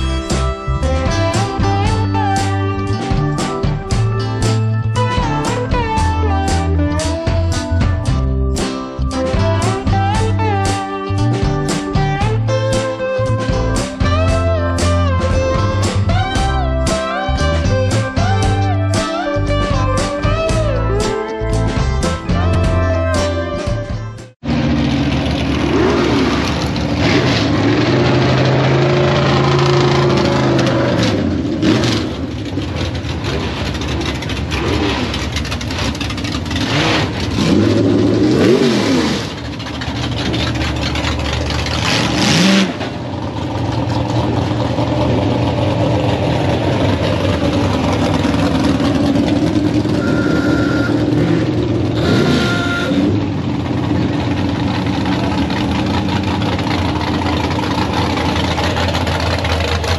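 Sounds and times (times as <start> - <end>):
car engines revving: 24.4 - 59.9
short high beeps: 49.9 - 51.4, 52.0 - 53.1.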